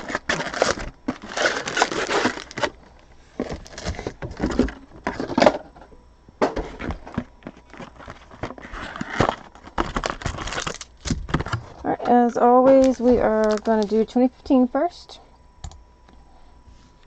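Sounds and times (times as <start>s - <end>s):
plastic packaging crinkling: 0.0s - 5.5s, 6.8s - 14.1s.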